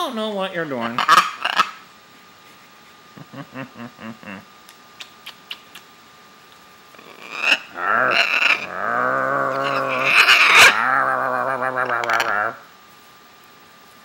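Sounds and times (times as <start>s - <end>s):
parrot croaking growl: 6.9s - 12.7s.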